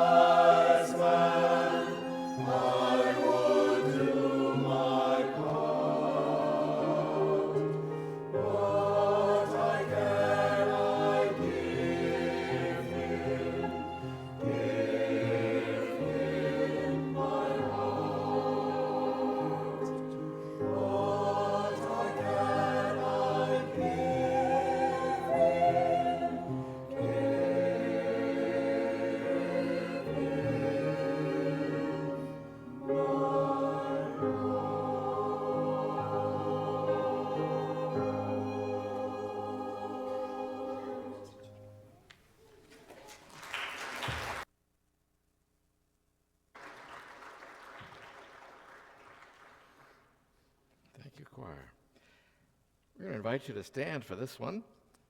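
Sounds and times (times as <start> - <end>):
choir singing: 0.0 - 42.0.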